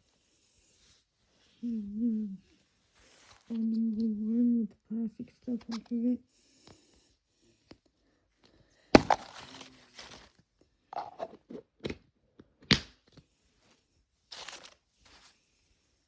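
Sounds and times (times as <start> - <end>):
plastic capsule cracking open: 9.0 - 10.3
plastic crinkling: 9.0 - 10.4, 14.3 - 15.3.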